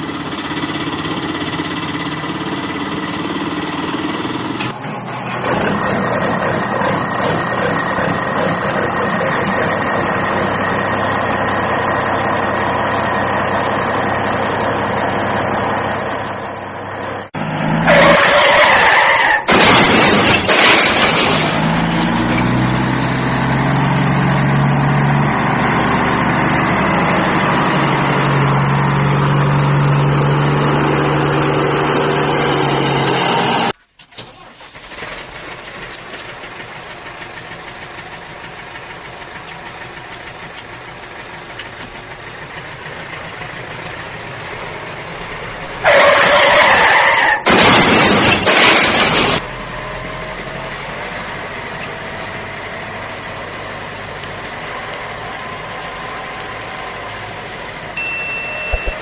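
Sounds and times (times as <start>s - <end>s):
vehicle engine running: 0.0s - 17.9s, 21.3s - 46.0s, 48.6s - 59.0s
loud rough engine burst: 17.4s - 58.0s.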